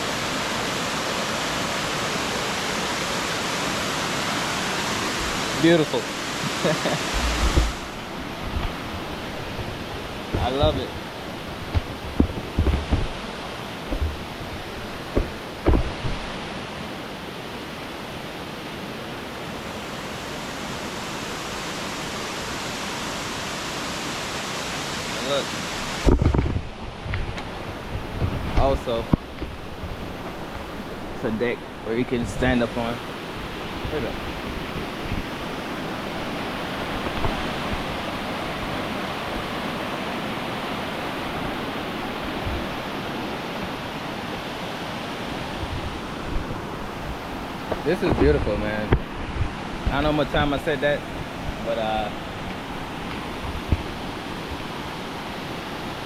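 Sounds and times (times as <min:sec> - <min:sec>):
waterfall roaring: 0:00.0 - 0:56.0
low thumps: 0:07.1 - 0:10.6, 0:11.6 - 0:13.2, 0:13.9 - 0:16.3.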